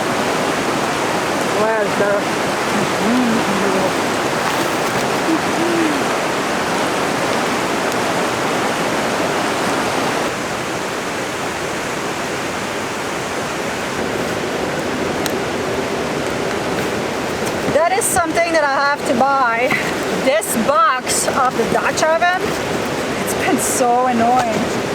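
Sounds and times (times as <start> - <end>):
heavy rain falling: 0.0 - 12.5.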